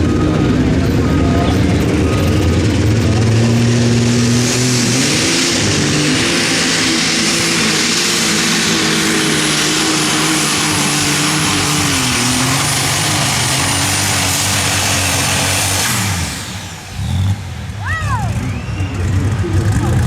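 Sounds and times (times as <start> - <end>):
high-pitched whine: 0.0 - 13.4
diesel engine running flat out: 0.0 - 20.0.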